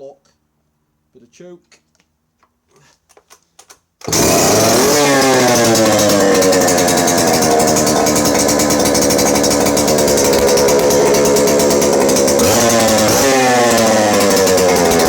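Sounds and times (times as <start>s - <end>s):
chainsaw engine revving: 4.0s - 15.0s.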